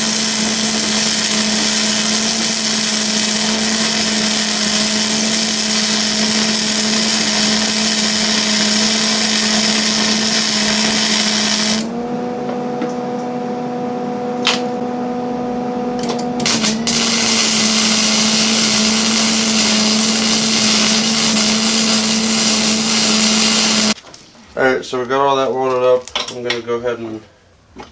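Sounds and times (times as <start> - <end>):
grinder grinding steel: 0.0 - 12.2, 16.0 - 24.0.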